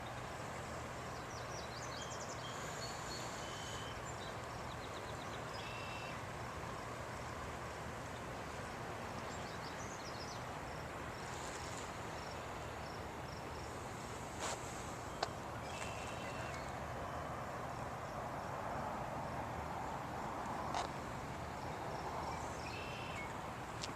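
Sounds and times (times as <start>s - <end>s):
small birds chirping and trilling: 15.0s - 17.3s.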